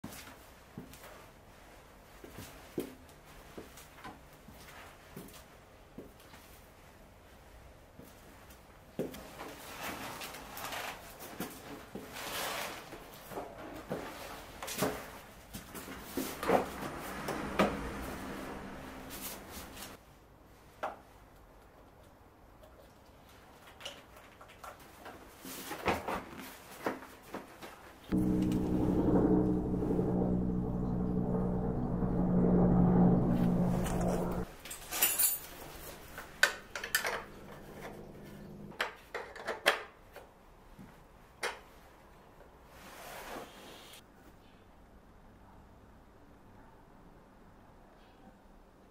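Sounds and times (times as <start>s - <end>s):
music: 28.2s - 33.0s.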